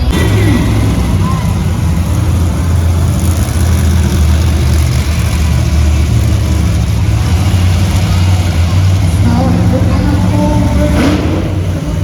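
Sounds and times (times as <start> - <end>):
arena crowd noise: 0.0 - 12.0
monster truck engine rumbling: 0.0 - 12.0.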